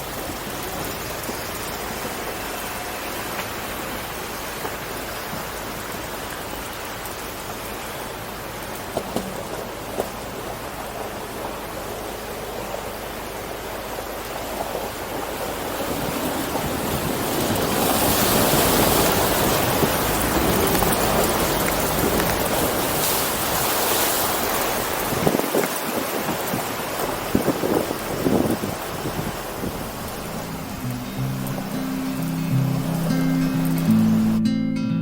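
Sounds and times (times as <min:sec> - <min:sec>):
rushing water: 0:00.0 - 0:34.5
short knocks: 0:08.9 - 0:10.2.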